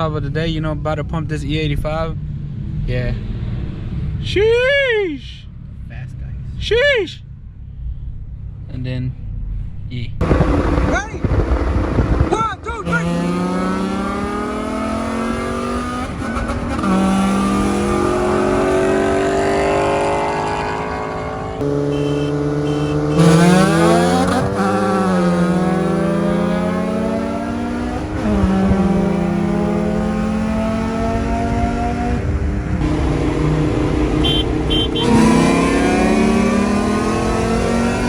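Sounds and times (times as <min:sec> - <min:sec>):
car engine accelerating: 0:10.2 - 0:38.0.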